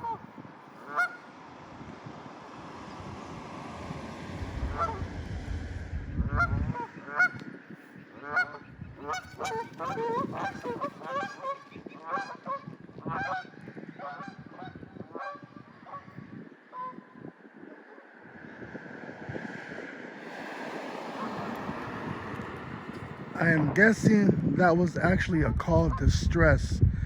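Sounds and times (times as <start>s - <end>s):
geese honking: 0.0s - 0.2s, 0.8s - 1.3s, 4.4s - 5.5s, 6.2s - 16.1s
low rumble: 3.7s - 7.2s.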